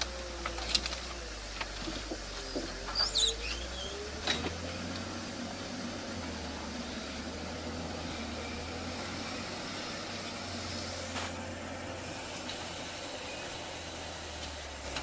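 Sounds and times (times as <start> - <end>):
machine engine humming: 0.0 - 15.0
hiss: 2.2 - 15.0.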